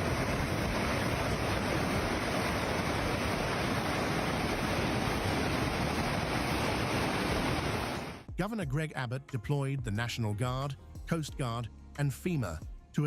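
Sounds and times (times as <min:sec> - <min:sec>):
rushing floodwater: 0:00.0 - 0:08.3.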